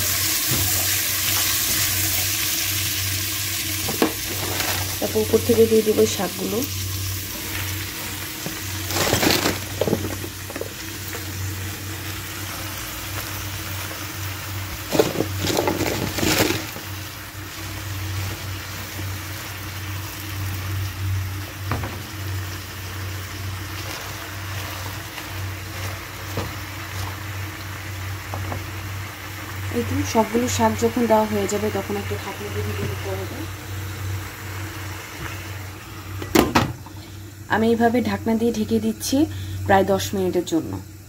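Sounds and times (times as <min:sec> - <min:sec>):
vegetables sizzling in oil: 0:00.0 - 0:41.0
leaves dropped into pan: 0:03.8 - 0:05.1, 0:14.8 - 0:16.9.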